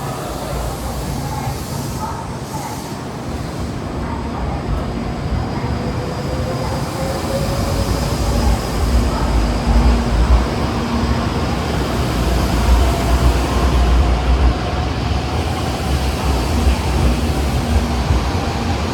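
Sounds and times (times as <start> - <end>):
train rail rumble: 0.0 - 18.9.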